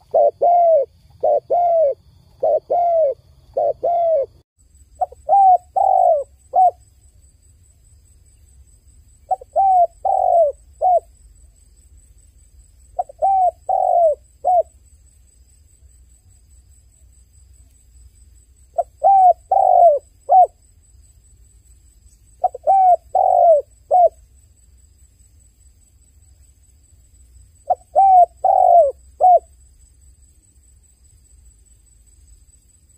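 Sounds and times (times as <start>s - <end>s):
dove cooing: 0.0s - 4.4s, 5.0s - 6.8s, 9.3s - 11.1s, 13.0s - 14.7s, 18.8s - 20.6s, 22.4s - 24.2s, 27.7s - 29.5s.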